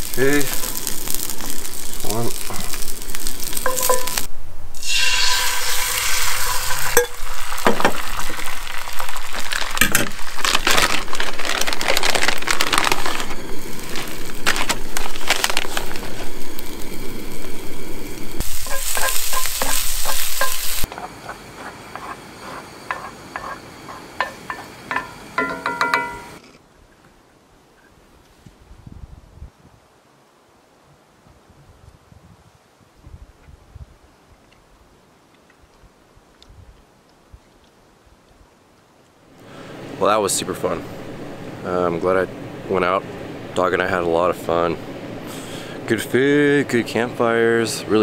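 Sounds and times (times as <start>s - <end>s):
eggs sizzling in a skillet: 0.0s - 26.4s
wooden spatula scraping: 18.5s - 24.6s.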